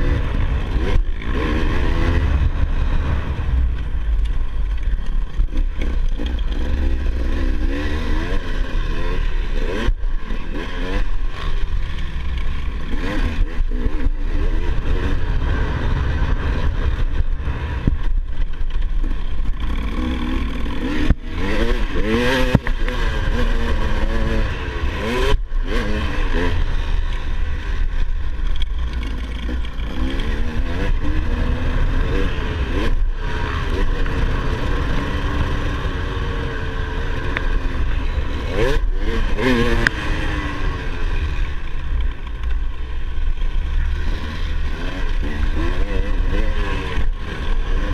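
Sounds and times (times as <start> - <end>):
low rumble: 0.0 - 8.8, 11.0 - 21.7
motorbike engine revving: 0.0 - 47.9.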